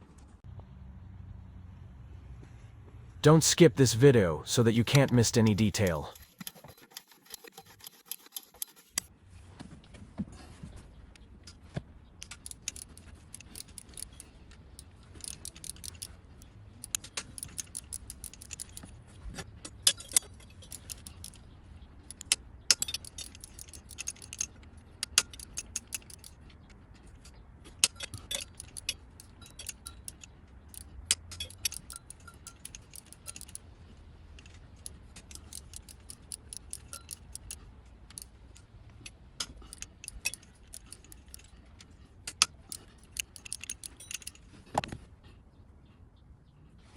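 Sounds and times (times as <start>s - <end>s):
metal hand tools clinking: 42.7s - 44.4s.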